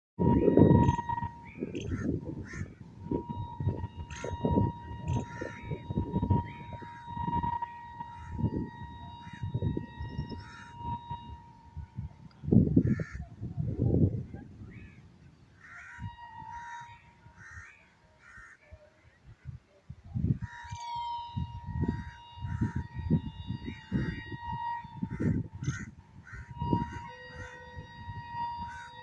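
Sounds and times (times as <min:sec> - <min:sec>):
crows cawing: 0:01.8 - 0:02.8, 0:10.2 - 0:11.0, 0:12.8 - 0:13.3, 0:15.6 - 0:18.6, 0:25.1 - 0:26.5, 0:28.7 - 0:29.0.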